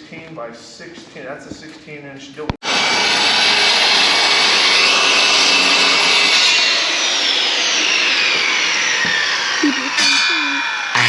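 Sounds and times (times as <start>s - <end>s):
power saw cutting: 2.6s - 11.0s.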